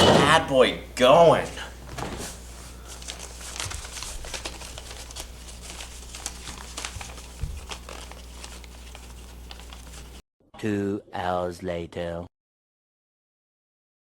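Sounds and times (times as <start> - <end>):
crinkling and clicking of handling: 2.9 - 10.2.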